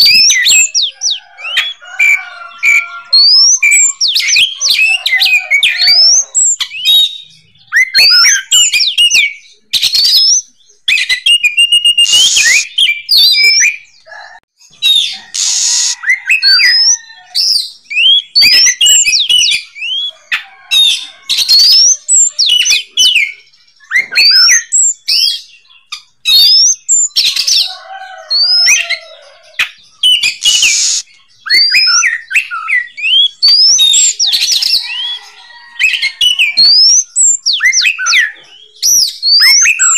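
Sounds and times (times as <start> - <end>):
bird singing whistles: 0.0 - 0.9, 3.2 - 13.8, 14.8 - 20.1, 21.4 - 25.5, 26.2 - 27.2, 30.0 - 35.2, 35.9 - 39.9
harsh rasping bird calls: 0.0 - 39.9.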